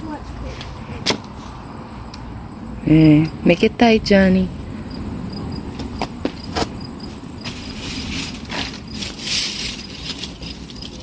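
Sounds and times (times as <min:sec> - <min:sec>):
insects chirping: 0:00.7 - 0:11.0
rustling: 0:07.4 - 0:11.0.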